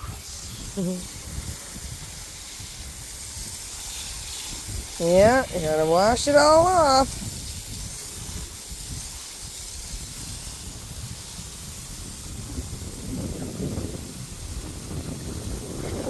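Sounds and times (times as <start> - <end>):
garden hose spraying water: 0.0 - 16.0.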